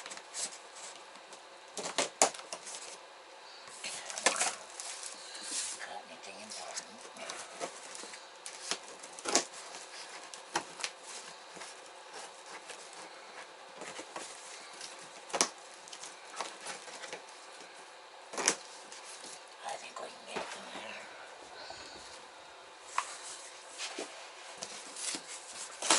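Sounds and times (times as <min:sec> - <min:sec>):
cardboard rustling and scraping: 0:00.0 - 0:03.0, 0:06.6 - 0:19.4, 0:22.8 - 0:25.9.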